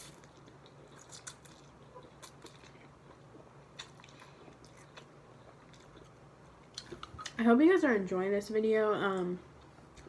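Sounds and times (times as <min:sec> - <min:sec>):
person chewing food: 0:00.0 - 0:07.4.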